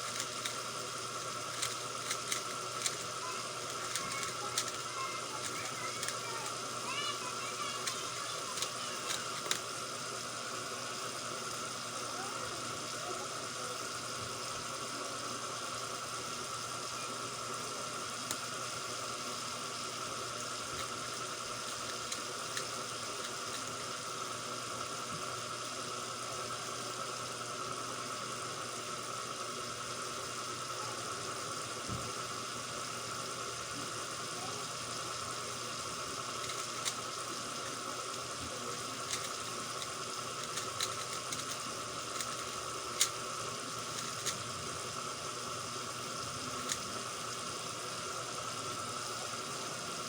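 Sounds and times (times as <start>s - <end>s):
faint constant hum: 0.0s - 50.0s
faint clicks: 1.5s - 9.7s, 36.4s - 37.0s, 39.1s - 43.2s.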